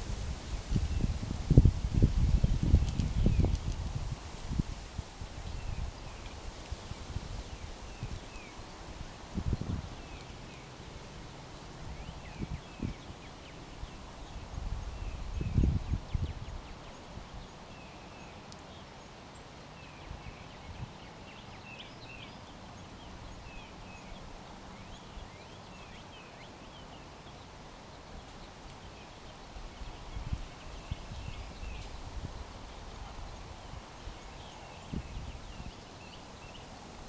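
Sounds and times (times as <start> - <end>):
small birds chirping: 5.4 - 36.9.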